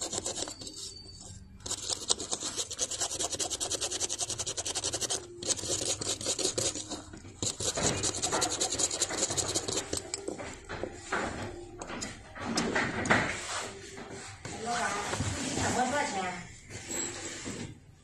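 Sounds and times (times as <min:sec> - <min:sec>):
small tool scratching hard surface: 0:00.0 - 0:10.2.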